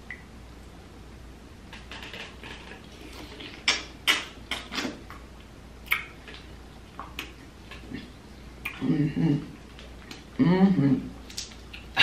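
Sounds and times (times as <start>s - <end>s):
wet mouth clicks: 3.3s - 5.2s, 5.8s - 8.9s.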